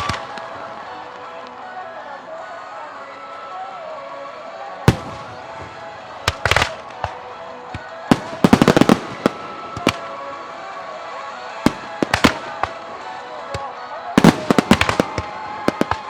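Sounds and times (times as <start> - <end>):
faint background music: 0.0 - 16.0
firework shells bursting: 8.1 - 10.2, 11.7 - 13.1, 14.2 - 16.0.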